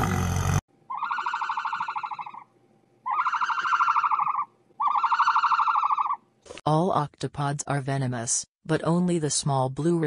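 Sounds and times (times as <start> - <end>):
high pulsing animal call: 0.0 - 6.2.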